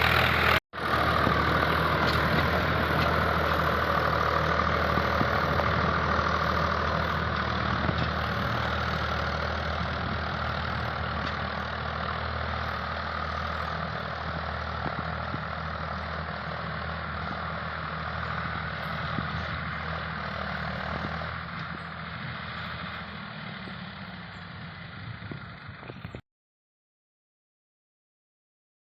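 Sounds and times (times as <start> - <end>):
tractor diesel engine running: 0.0 - 26.2.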